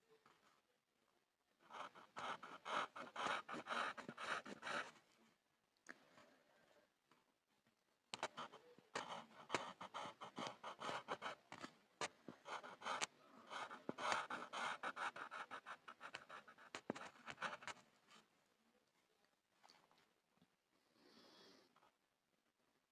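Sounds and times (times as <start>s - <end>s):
pencil scribbling on board: 1.7s - 4.9s, 8.2s - 17.8s.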